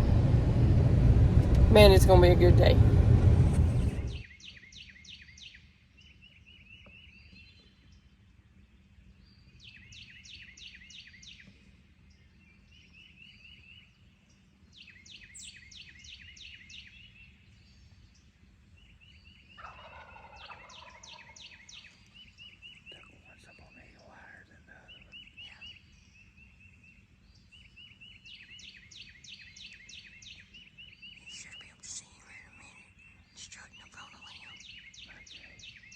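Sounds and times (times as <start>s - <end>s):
faint low rumble: 0.0s - 4.2s
distant turkey gobbling: 19.6s - 21.9s.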